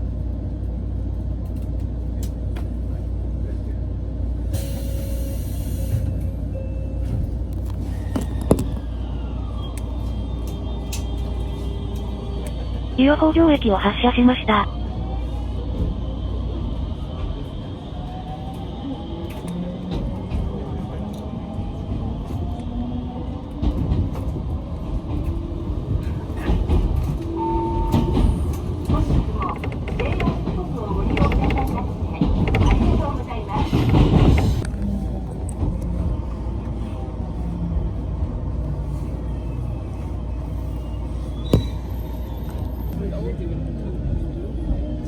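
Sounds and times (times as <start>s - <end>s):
train rumble: 0.0s - 45.0s
wheels clacking over rail joints: 28.0s - 34.6s.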